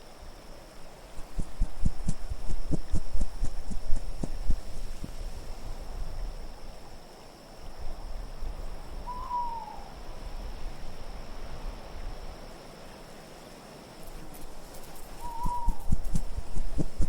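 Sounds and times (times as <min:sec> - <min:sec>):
low rumble of wind: 0:00.0 - 0:17.0
owl hooting: 0:09.0 - 0:10.0, 0:15.0 - 0:17.0.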